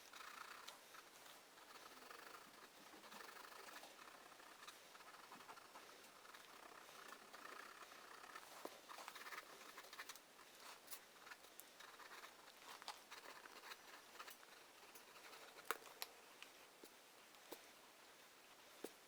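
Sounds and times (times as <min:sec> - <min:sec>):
drawing tool scratching paper: 0:01.6 - 0:15.6.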